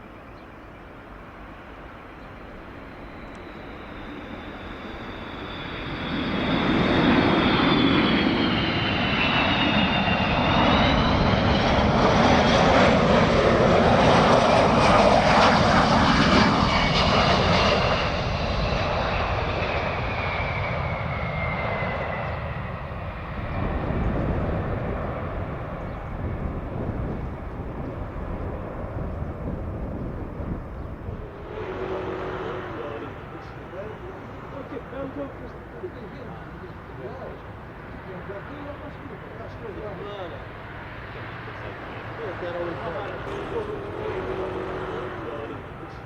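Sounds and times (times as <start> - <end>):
jet engine noise: 0.0 - 46.0
high descending jet whine: 1.2 - 46.0.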